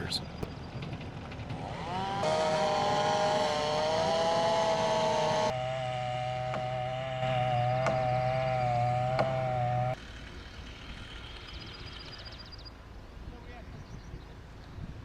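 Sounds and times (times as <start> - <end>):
chainsaw engine at high revs: 1.4 - 11.6.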